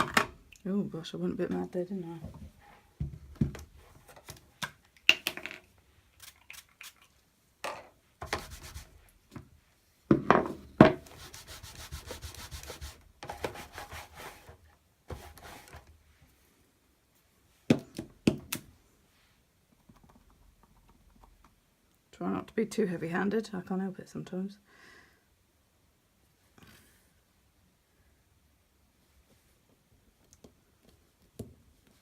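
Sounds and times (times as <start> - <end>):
rubbing on card: 8.3 - 9.0, 11.1 - 14.5.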